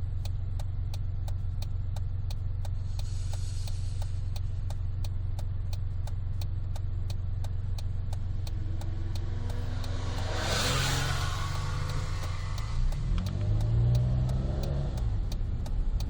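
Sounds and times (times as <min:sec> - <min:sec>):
car exhaust drone: 0:00.0 - 0:16.0
fast even ticking: 0:03.6 - 0:16.0
rush of hiss: 0:09.2 - 0:13.1.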